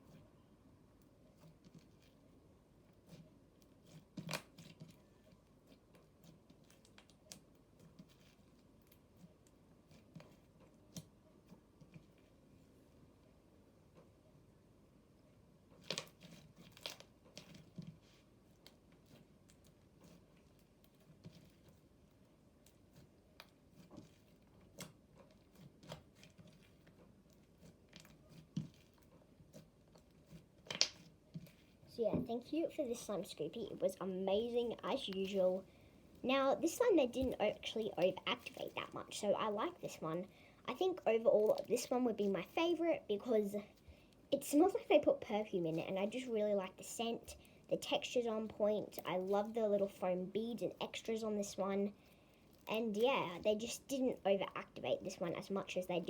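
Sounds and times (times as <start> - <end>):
slime squishing: 1.3 - 12.4, 15.7 - 56.0.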